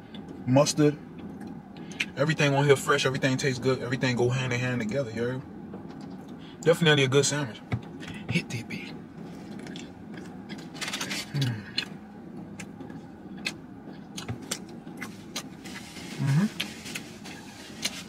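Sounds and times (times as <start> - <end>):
car cabin hum: 0.0 - 18.0
man chewing: 9.2 - 18.0.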